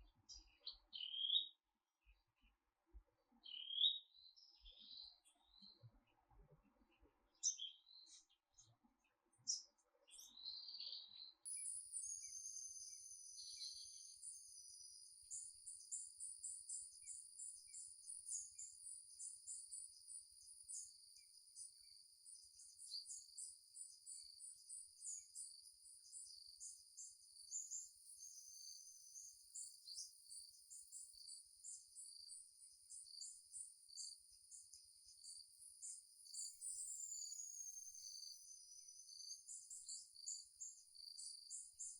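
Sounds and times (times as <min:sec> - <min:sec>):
faint bird chirps: 0:00.0 - 0:02.6, 0:03.3 - 0:41.9
high insect chorus: 0:11.5 - 0:41.9.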